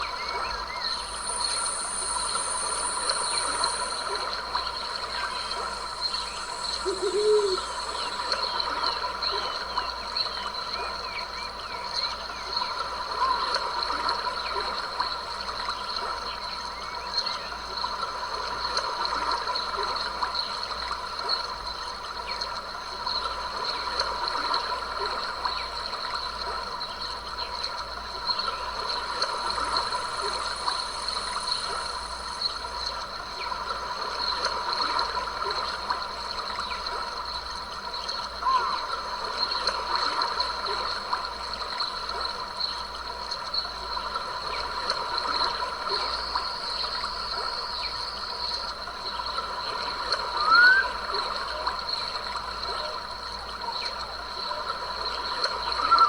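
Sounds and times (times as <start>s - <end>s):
insects chirring: 0.0s - 9.7s, 23.1s - 56.0s.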